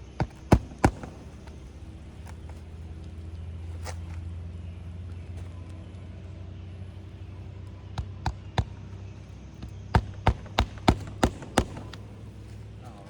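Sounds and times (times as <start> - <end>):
steady low hum: 0.0 - 13.0
hammer striking nails: 0.2 - 1.7, 9.6 - 12.2.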